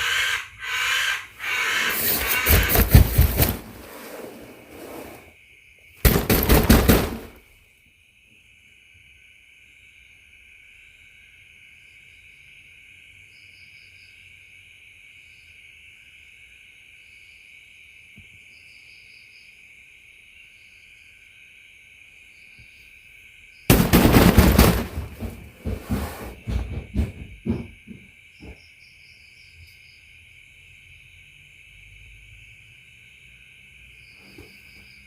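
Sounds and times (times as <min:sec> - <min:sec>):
night insects trilling: 0:00.0 - 0:35.0
sharp irregular knocks: 0:02.2 - 0:03.7, 0:06.0 - 0:07.4, 0:23.7 - 0:28.6.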